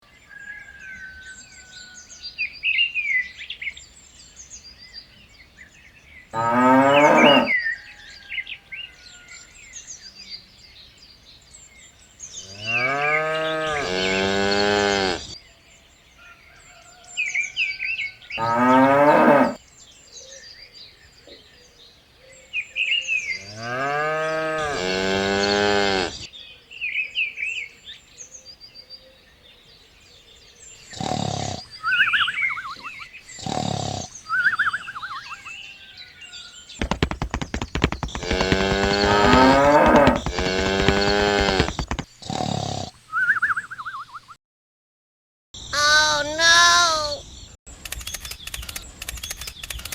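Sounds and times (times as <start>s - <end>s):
cows mooing: 6.4s - 7.5s, 18.4s - 19.6s, 23.7s - 26.2s, 37.9s - 41.8s
small birds chirping: 36.7s - 42.4s.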